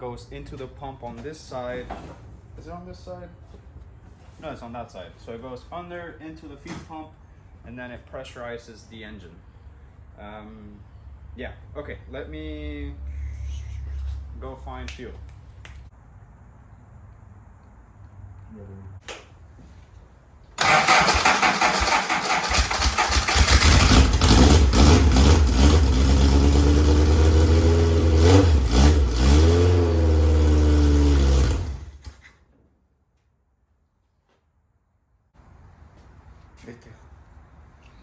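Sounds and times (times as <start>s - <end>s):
race car engine revving: 20.6s - 32.0s.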